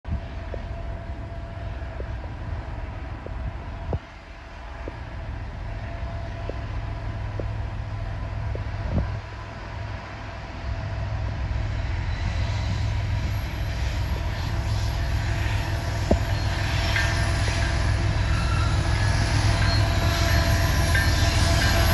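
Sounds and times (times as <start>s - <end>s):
diesel locomotive rumble: 0.0s - 21.9s
wheels on rails: 12.0s - 21.9s.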